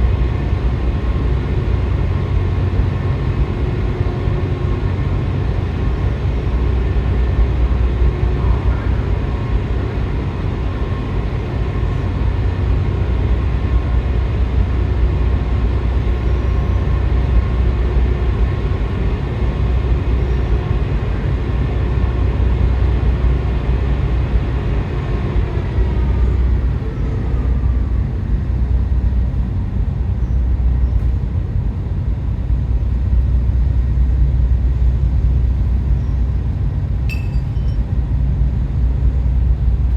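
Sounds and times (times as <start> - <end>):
ferry machinery drone: 0.0 - 39.9
high whine falling in pitch: 37.1 - 37.8.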